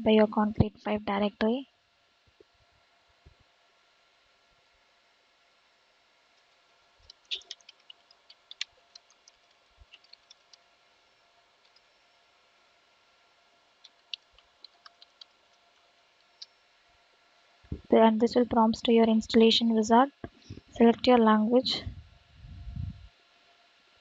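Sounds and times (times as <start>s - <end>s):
keyboard typing clicks: 7.0s - 10.5s, 13.8s - 15.4s.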